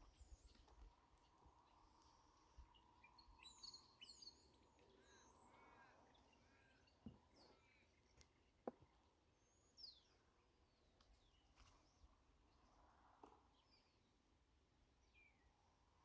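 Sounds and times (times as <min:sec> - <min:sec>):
birds chirping: 0:01.7 - 0:08.2.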